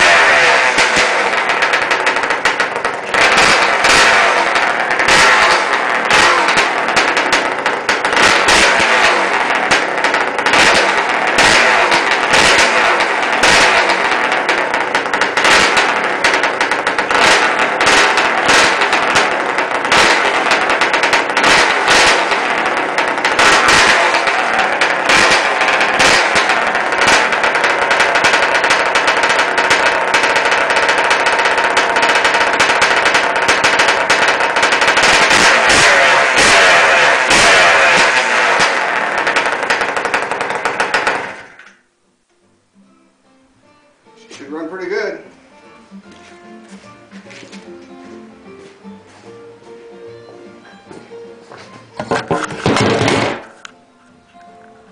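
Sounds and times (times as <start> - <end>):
two-stroke engine popping crackle: 0.0 - 41.9, 52.0 - 53.8.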